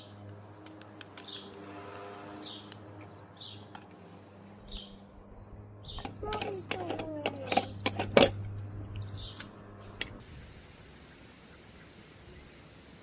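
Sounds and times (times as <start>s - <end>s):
steady low hum: 0.0s - 13.0s
small bird chirping: 1.2s - 1.6s, 2.4s - 3.7s, 4.6s - 5.1s, 5.8s - 13.0s.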